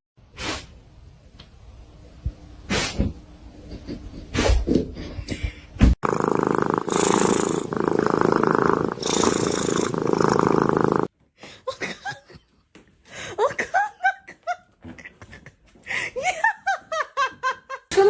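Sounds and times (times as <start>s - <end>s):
cat purring: 6.0s - 11.1s.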